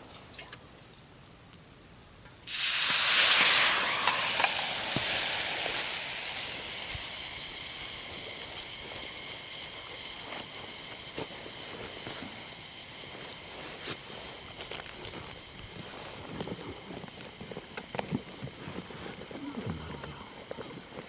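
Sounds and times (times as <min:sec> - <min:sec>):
faint crackles: 0:00.0 - 0:21.0
loud sizzling hiss: 0:00.0 - 0:21.0.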